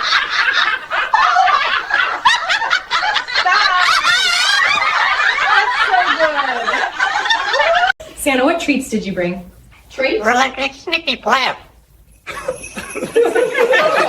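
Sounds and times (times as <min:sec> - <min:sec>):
people laughing: 0:00.0 - 0:08.0, 0:12.3 - 0:14.0.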